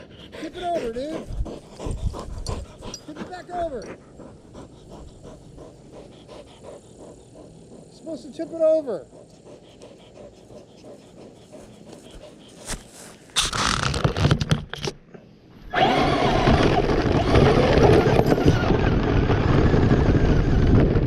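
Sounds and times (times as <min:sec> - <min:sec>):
rc truck driving over grass: 0:12.6 - 0:14.9, 0:15.7 - 0:21.0.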